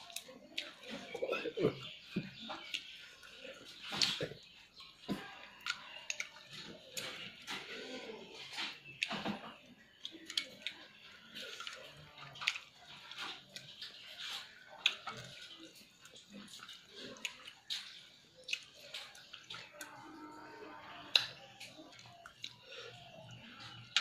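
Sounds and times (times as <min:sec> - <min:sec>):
wet chewing and lip-smacking: 0:00.0 - 0:07.7, 0:08.4 - 0:20.0, 0:20.8 - 0:24.0.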